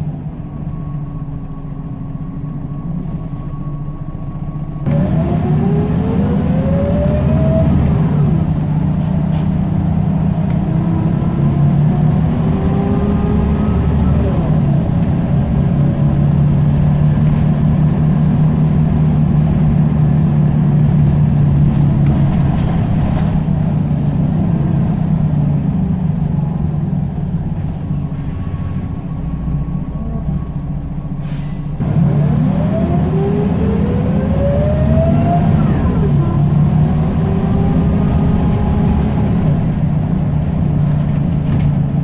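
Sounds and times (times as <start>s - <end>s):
bus diesel engine: 0.0s - 42.0s.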